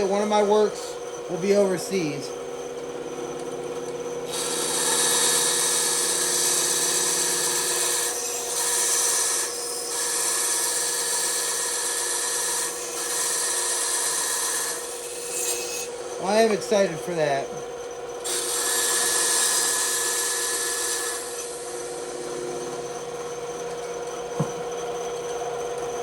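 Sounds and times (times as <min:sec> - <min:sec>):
bandsaw humming: 0:00.0 - 0:26.0
saw blade cutting wood: 0:04.3 - 0:17.6, 0:18.2 - 0:23.1.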